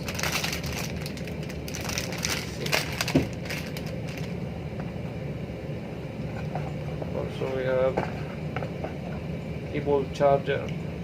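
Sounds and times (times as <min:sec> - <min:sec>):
packaging rustling and crinkling: 0:00.0 - 0:04.4.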